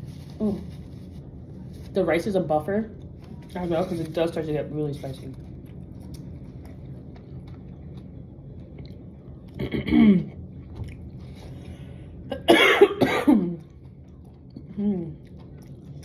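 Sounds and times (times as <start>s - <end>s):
woman coughing: 9.6s - 10.3s, 12.3s - 13.6s.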